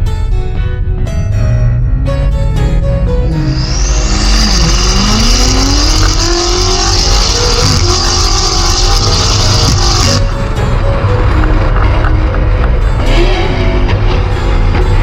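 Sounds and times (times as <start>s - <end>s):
car engine accelerating hard: 1.6s - 15.0s
steady high hiss: 3.4s - 10.3s.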